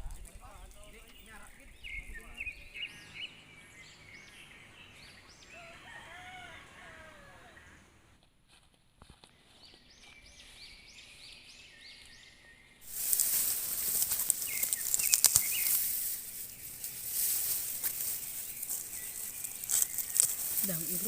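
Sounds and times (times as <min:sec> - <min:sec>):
crackling hiss with clicks: 0:12.9 - 0:16.3.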